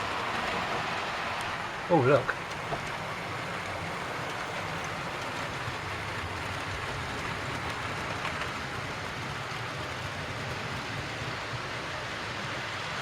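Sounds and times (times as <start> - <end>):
model train wheels on rails: 0.0 - 13.0.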